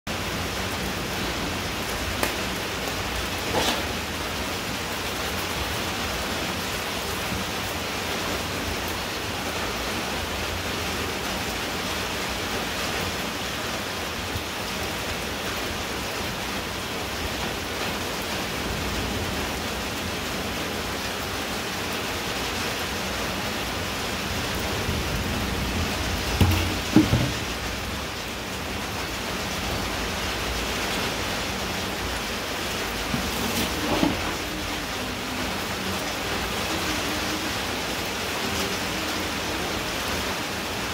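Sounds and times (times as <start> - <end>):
heavy rain on muddy ground: 0.0 - 40.9.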